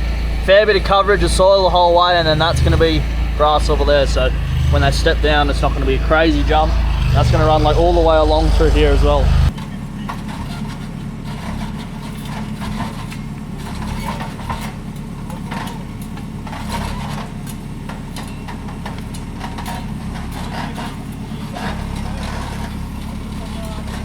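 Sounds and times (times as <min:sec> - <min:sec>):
heavy machinery engine running: 0:00.0 - 0:09.6.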